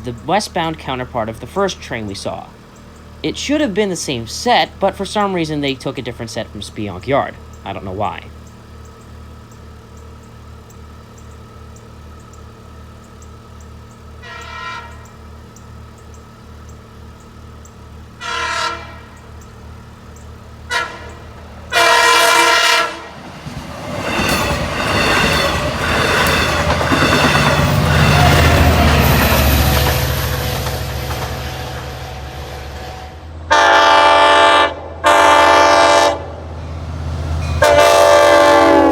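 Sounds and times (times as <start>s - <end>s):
train passing with rumble: 0.0s - 38.9s
train wheel noise: 0.0s - 38.9s
train horn blasts: 14.2s - 15.3s, 18.2s - 19.3s, 20.7s - 23.3s, 29.7s - 36.4s, 37.4s - 38.9s.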